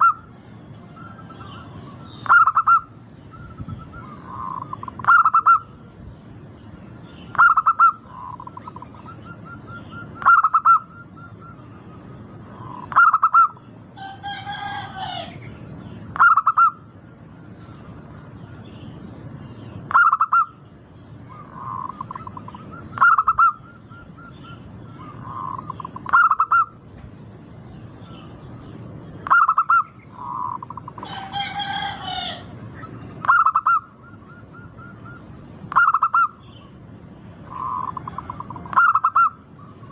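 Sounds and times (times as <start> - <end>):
harsh bird call: 0.0 - 5.8, 7.0 - 17.6, 19.6 - 26.8, 27.9 - 36.8, 37.4 - 39.9
dove cooing: 0.0 - 5.9, 7.2 - 15.4, 16.2 - 16.8, 19.9 - 20.6, 21.3 - 26.8, 29.2 - 36.4, 37.4 - 39.9.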